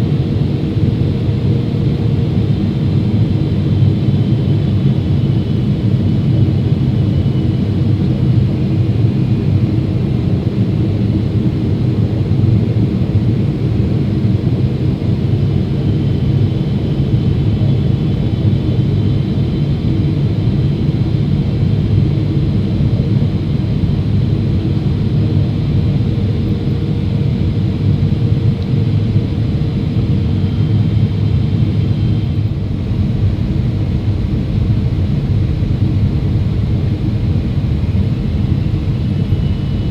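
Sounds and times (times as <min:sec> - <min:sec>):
jet engines rumbling: 0:00.0 - 0:39.9
faint high whines: 0:25.4 - 0:39.9.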